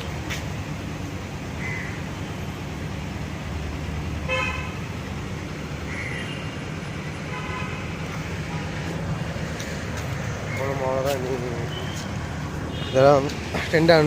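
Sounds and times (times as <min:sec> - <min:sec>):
road traffic rumbling: 0:00.0 - 0:14.0
vehicle horn honks: 0:04.3 - 0:04.8, 0:07.3 - 0:07.9.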